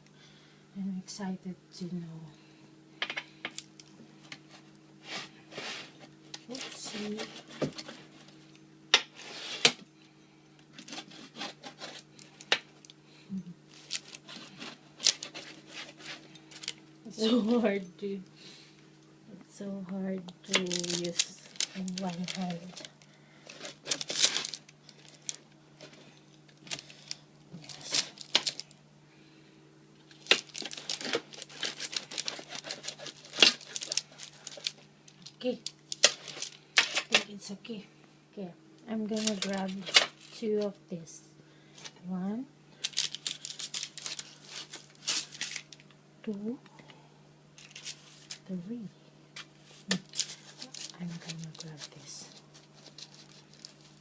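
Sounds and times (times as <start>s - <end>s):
pizza crust scraping and tearing: 4.3s - 8.3s, 10.7s - 12.5s, 13.7s - 16.8s, 20.6s - 25.4s, 30.1s - 34.8s, 42.8s - 45.7s, 49.6s - 54.0s
pizza cutter scraping through crust: 10.8s - 12.1s, 31.0s - 34.0s.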